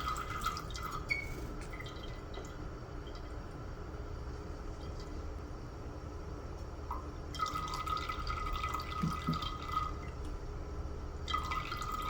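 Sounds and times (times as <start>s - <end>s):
water dripping and trickling: 6.9s - 10.4s.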